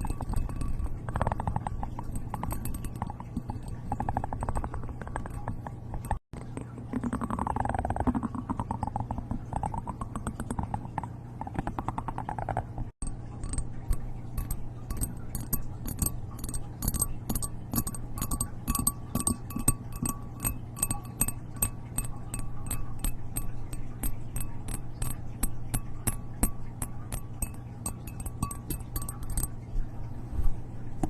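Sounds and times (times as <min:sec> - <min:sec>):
clinking taps on glass: 0:00.0 - 0:06.2, 0:13.0 - 0:29.6
low steady hum: 0:00.0 - 0:31.0.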